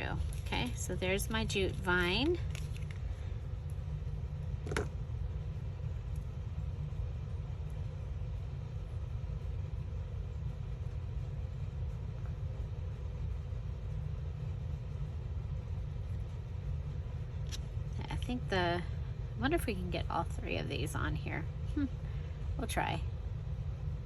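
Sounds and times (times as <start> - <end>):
faint hum: 0.0 - 24.0
low background rumble: 0.0 - 24.0.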